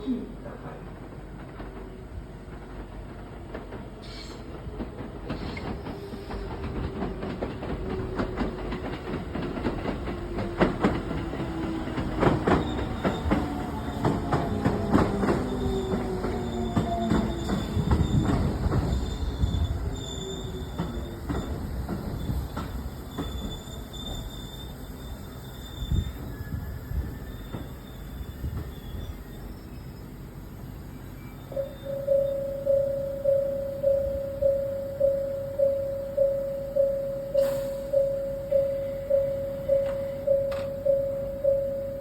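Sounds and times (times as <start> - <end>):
wheels clicking over rail joints: 0.9 - 24.3
electric train running: 31.3 - 42.0
whining tones falling in pitch: 31.5 - 42.0.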